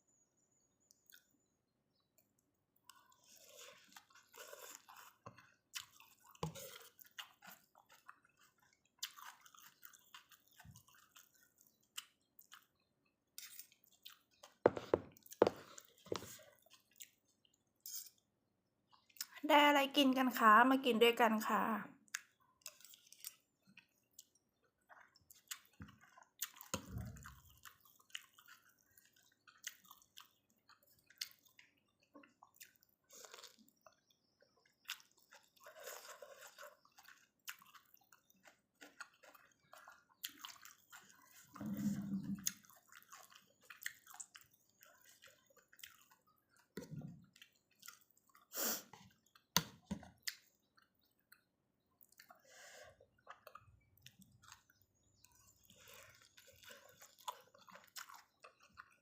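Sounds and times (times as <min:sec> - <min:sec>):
close-up chewing: 0:00.8 - 0:19.4, 0:22.0 - 0:59.0
slurping soup: 0:03.0 - 0:08.6, 0:40.7 - 0:43.6, 0:48.4 - 0:49.3
swallowing: 0:38.8 - 0:44.1.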